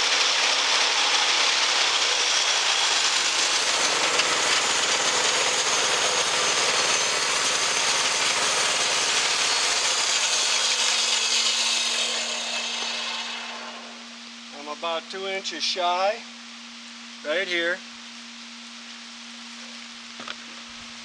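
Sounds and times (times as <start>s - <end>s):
saw blade sawing through log: 0.0s - 14.0s
low running hum: 11.7s - 21.0s.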